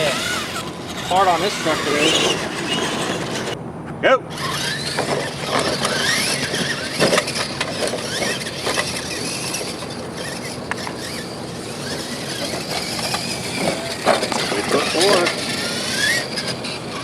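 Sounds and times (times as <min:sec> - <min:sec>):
rc truck motors whining: 0:00.0 - 0:03.6, 0:04.3 - 0:17.0
knocks and clatter from trucks: 0:04.7 - 0:11.2, 0:11.8 - 0:17.0.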